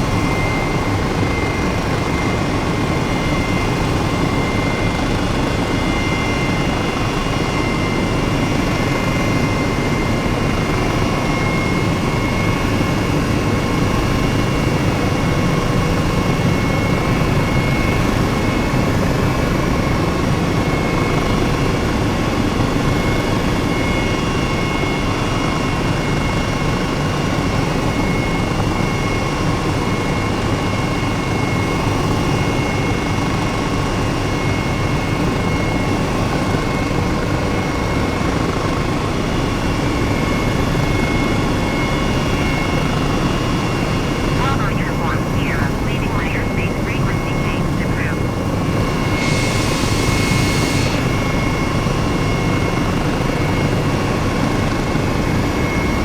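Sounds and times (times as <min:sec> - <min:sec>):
aircraft engine drone: 0:40.2 - 0:54.4
faint high whines: 0:44.0 - 0:51.0.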